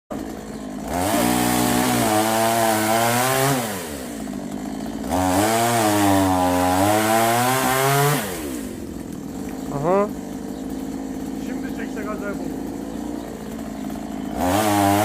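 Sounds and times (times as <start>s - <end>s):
chainsaw revving: 0.1s - 15.0s.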